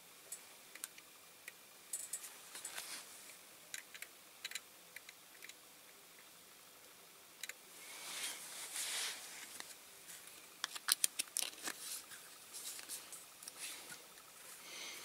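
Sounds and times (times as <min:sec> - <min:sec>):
soft rustle of hands: 0:02.2 - 0:03.3, 0:07.8 - 0:10.4, 0:11.6 - 0:14.9.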